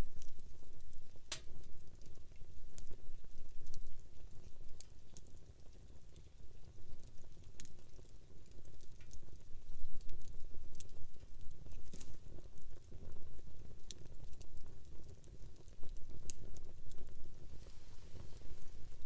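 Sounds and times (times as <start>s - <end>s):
burning wood crackling and popping: 0.0s - 19.0s
low rumble of flames: 0.0s - 19.0s.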